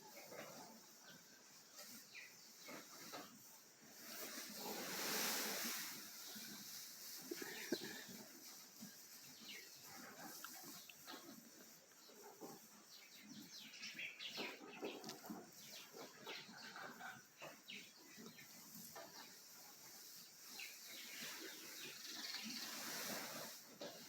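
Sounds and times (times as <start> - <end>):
cows munching hay: 0.0 - 24.0.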